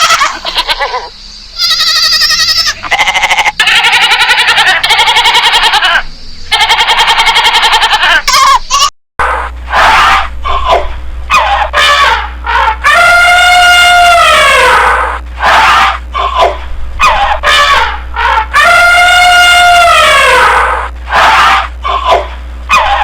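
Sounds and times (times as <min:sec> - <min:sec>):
goats bleating: 0:00.0 - 0:08.8
low hum: 0:00.0 - 0:23.0.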